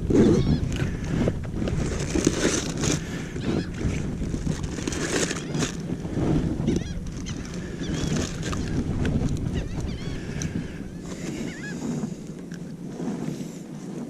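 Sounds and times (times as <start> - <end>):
wind rumbling on microphone: 0.0 - 14.0
short high bird calls: 9.5 - 11.9.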